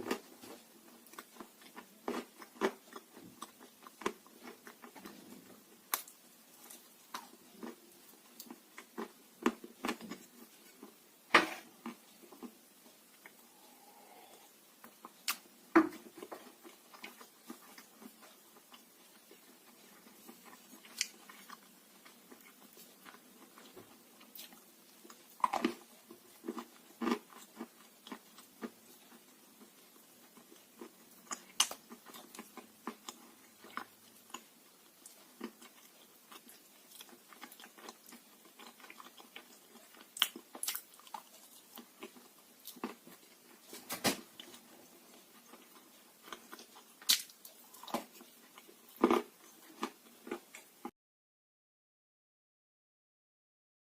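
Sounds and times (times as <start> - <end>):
clay being bitten and chewed: 30.4 - 43.5, 44.4 - 50.7.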